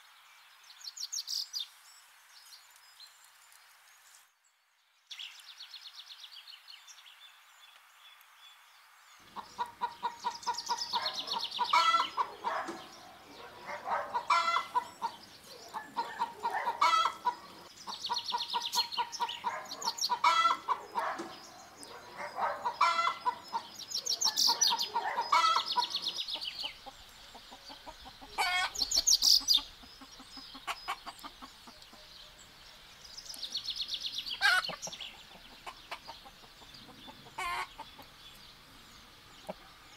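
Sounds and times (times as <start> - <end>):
hens clucking and squawking: 9.3 - 32.1, 34.3 - 38.2
faint hiss: 25.9 - 39.9.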